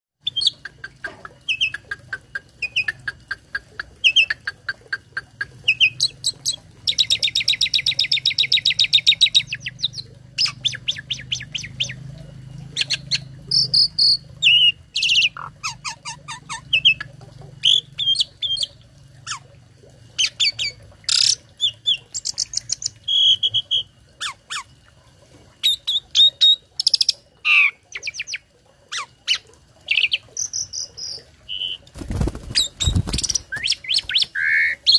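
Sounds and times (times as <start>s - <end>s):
fast rattling trill: 32.0s - 33.7s.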